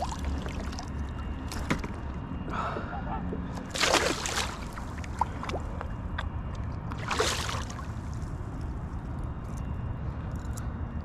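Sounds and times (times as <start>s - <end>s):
water splash: 0.0s - 0.8s, 3.7s - 5.7s, 7.0s - 7.9s
water sloshing: 0.0s - 2.1s, 3.1s - 6.0s, 6.9s - 8.2s
low steady rumble: 0.0s - 11.0s.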